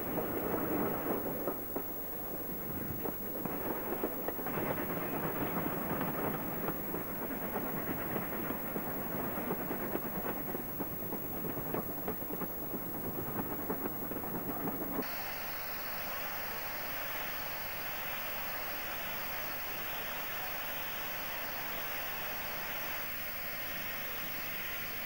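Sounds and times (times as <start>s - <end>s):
wheels clattering on rails: 0.0s - 15.1s
steady hiss: 0.0s - 25.0s
train coach rumble: 0.0s - 25.0s.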